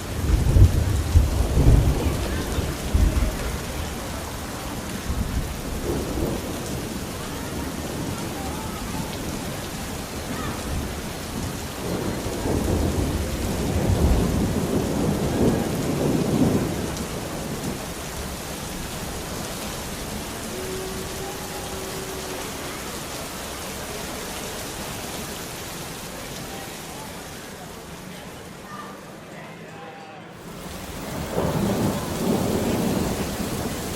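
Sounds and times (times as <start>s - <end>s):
thunder rumbling: 0.0s - 23.6s, 30.4s - 33.9s
steady rain falling: 0.0s - 33.9s.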